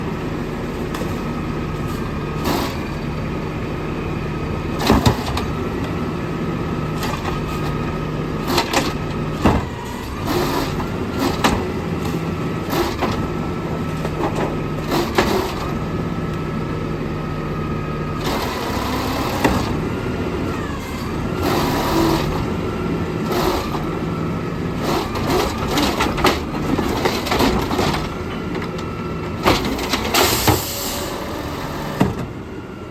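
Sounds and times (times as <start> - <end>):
garbage truck engine running: 0.0 - 32.9
bin banging and clattering: 29.4 - 30.7.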